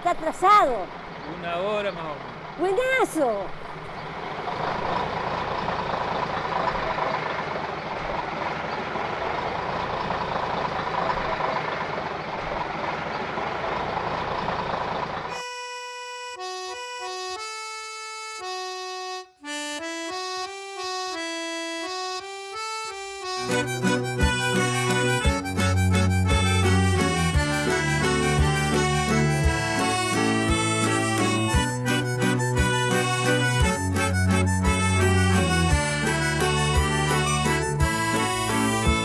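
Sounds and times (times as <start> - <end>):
accordion music: 0.0 - 3.6, 14.2 - 39.0
traffic rumble and hiss: 0.0 - 15.4.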